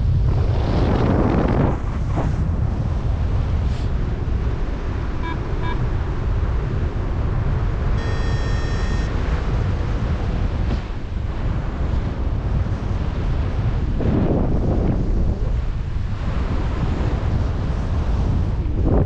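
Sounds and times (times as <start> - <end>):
wind buffeting microphone: 0.0 - 19.0
short electronic beeps: 5.2 - 5.8, 8.0 - 9.2
long electronic tone: 5.2 - 6.0, 8.0 - 9.2.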